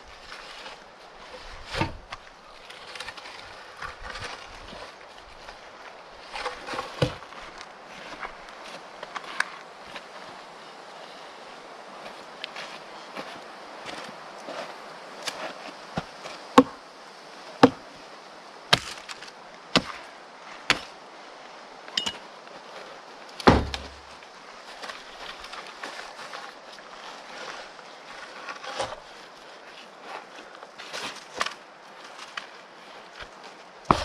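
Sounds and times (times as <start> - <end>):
chopping knocks: 17.6 - 17.8, 23.4 - 24.0
dull thud: 23.4 - 24.0.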